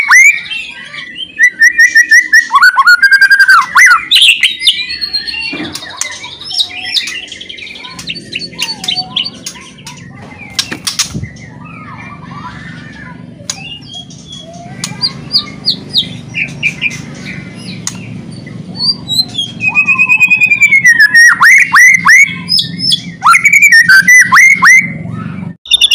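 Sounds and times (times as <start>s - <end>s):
bird singing whistles and rattles: 1.4s - 11.6s.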